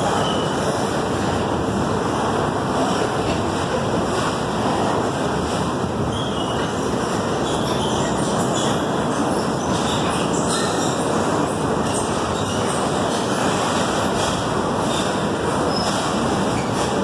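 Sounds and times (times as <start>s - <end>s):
train wheels rolling on rail: 0.0s - 17.0s.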